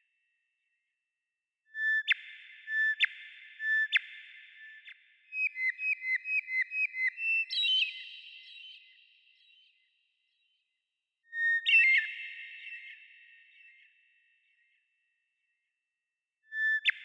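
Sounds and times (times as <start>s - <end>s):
songbird whistling: 5.4s - 9.8s.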